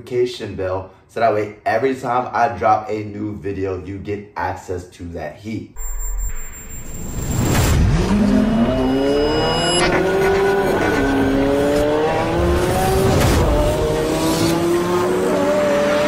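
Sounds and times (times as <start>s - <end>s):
car engine accelerating: 7.6s - 16.0s.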